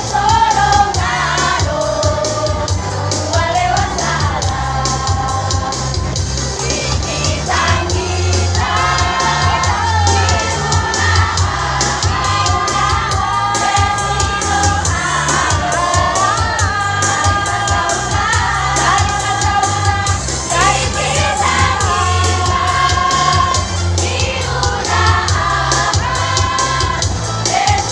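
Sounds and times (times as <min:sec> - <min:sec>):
choir singing sustained notes: 0:00.0 - 0:05.9, 0:06.6 - 0:27.9
accompaniment with steady beat: 0:00.0 - 0:27.9
pulsing bass line: 0:00.0 - 0:27.9.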